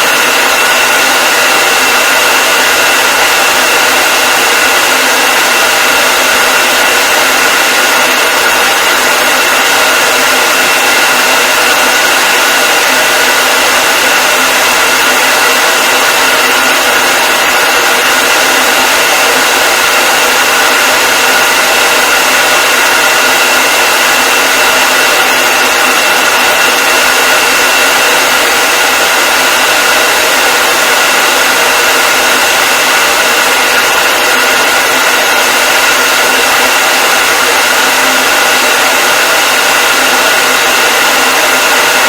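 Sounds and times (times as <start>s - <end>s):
hair dryer running: 0.0s - 42.0s.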